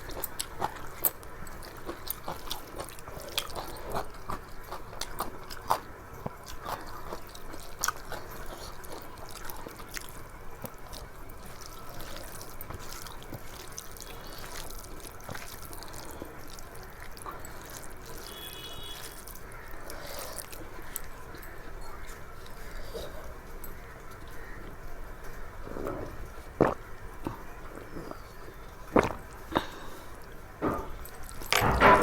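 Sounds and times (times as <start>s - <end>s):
wet chewing: 0.0s - 32.0s.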